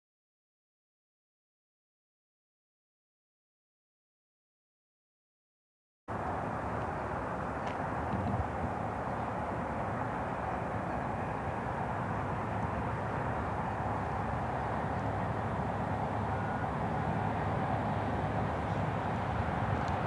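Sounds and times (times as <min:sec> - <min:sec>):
distant train rumble: 0:06.1 - 0:20.0.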